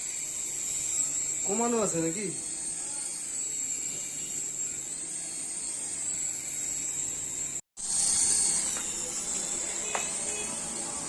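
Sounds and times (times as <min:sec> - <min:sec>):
small electric motors whining: 0:00.0 - 0:11.0.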